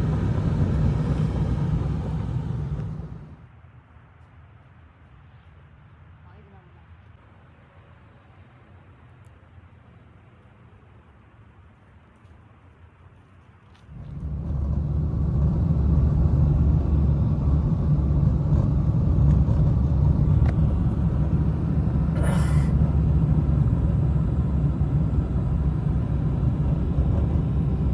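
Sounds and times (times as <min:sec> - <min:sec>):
steady low rumble: 0:00.0 - 0:03.4, 0:13.9 - 0:27.9.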